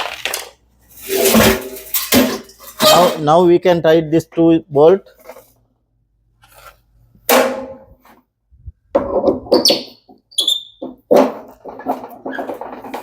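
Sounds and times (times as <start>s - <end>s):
hand tools clanking on metal: 1.0s - 3.3s
short high squeaks: 9.6s - 10.8s.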